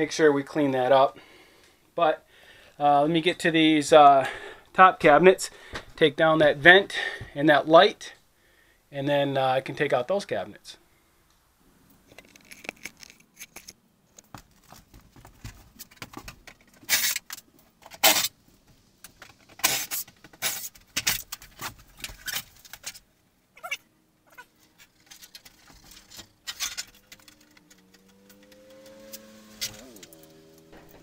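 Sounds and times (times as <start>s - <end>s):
knocks clatters and rattles: 12.1s - 18.0s, 24.8s - 28.8s, 30.0s - 31.0s.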